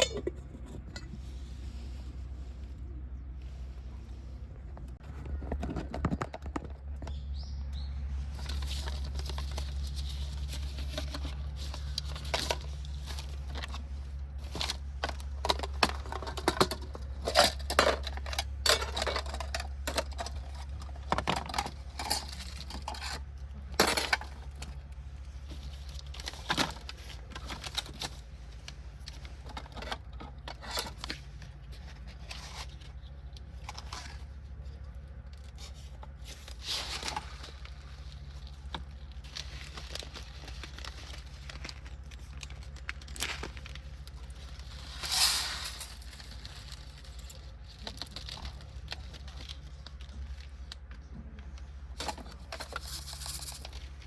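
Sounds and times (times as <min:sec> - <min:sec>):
metal cookware clinking: 0:00.0 - 0:01.1.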